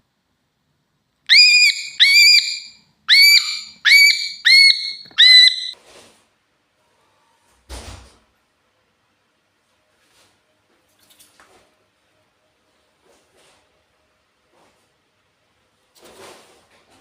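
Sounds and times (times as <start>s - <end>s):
cockatiel shrill whistled calls: 1.3s - 5.8s
thump and rustle: 7.5s - 8.3s, 15.9s - 17.0s.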